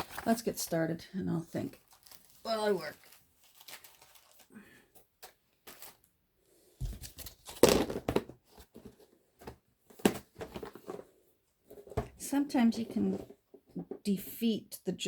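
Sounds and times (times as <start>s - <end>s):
paper rustling: 1.8s - 4.5s.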